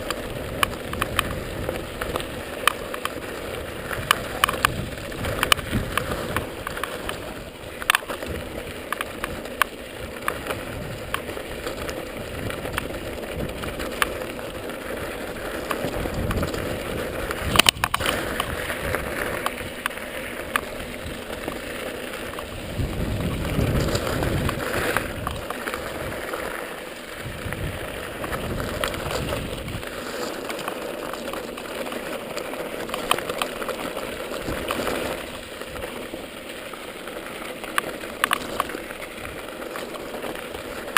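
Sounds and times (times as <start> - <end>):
bike rattles and knocks: 0.0 - 40.9
tyre and trail noise: 0.0 - 40.9
wind on microphone: 3.6 - 7.6, 10.4 - 13.8, 15.8 - 19.7, 22.5 - 26.2, 27.2 - 29.9.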